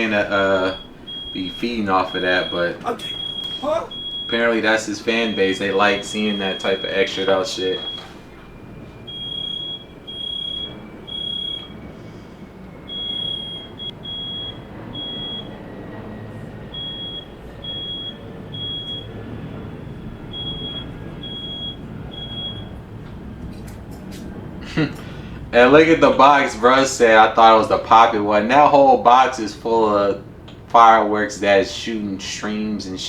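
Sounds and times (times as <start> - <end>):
smoke alarm beeping: 0.0 - 23.0
low background rumble: 0.0 - 33.0.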